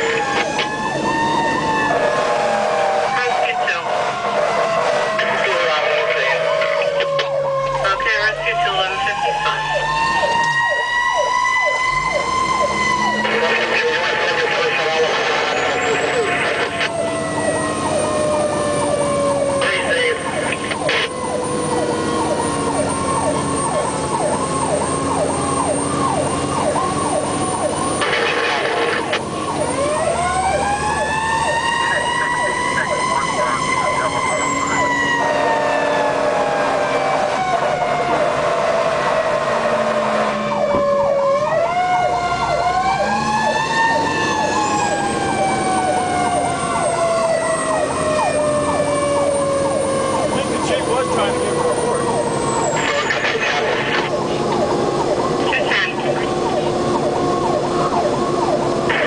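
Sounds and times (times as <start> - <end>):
fire engine siren yelping: 0.0 - 59.0
truck engine running: 40.5 - 59.0.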